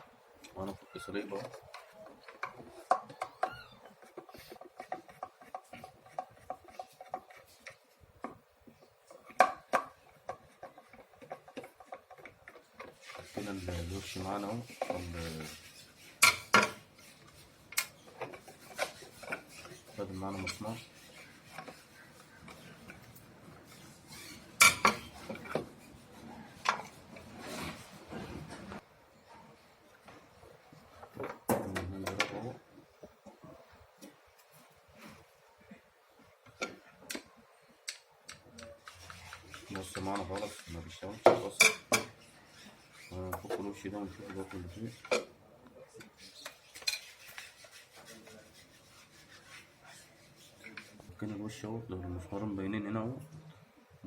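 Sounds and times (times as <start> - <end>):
scraping: 9.1 - 28.8.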